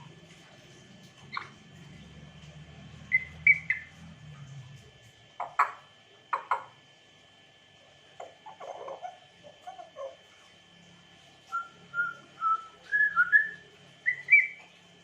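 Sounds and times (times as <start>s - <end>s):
parrot whistling: 3.0s - 3.9s, 11.5s - 14.6s
parrot clicking calls: 5.4s - 6.8s.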